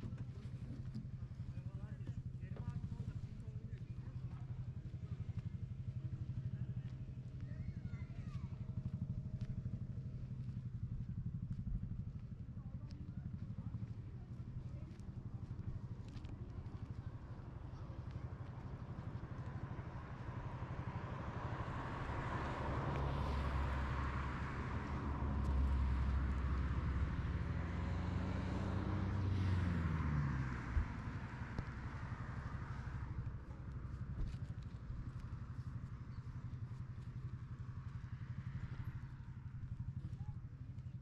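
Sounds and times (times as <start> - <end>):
engine running steadily: 0.0 - 41.0
louder engine passing: 20.0 - 33.4.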